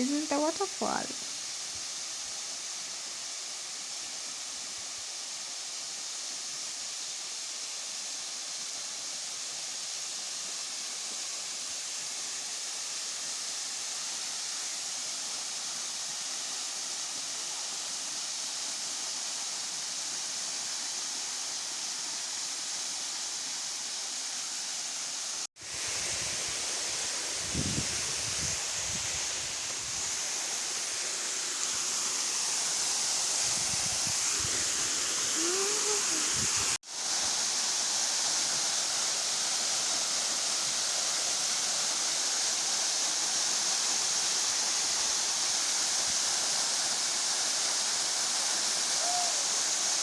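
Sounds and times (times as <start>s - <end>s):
waterfall splashing: 25.1s - 50.0s.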